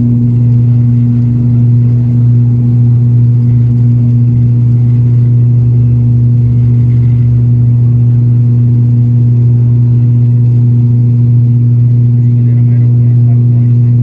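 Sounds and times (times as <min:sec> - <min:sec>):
turboprop engines droning: 0:00.0 - 0:14.0.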